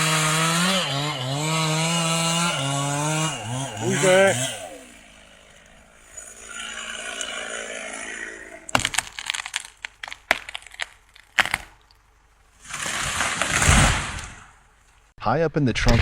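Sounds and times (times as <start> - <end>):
chainsaw engine idling: 0.0 - 9.0
tree crashing down: 0.0 - 11.8, 12.6 - 14.7
wood cracking and snapping: 0.0 - 14.6.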